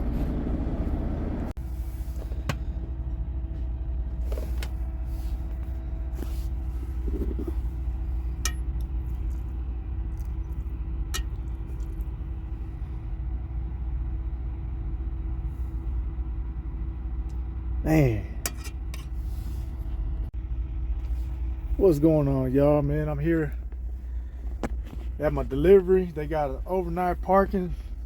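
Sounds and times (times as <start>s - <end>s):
truck engine and road rumble: 0.0s - 28.0s
faint steady hum: 1.6s - 28.0s.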